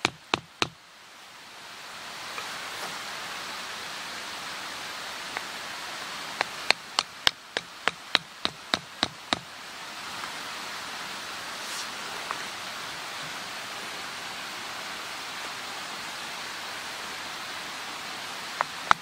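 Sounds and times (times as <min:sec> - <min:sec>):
sharp ringing knocks: 0:06.7 - 0:09.4.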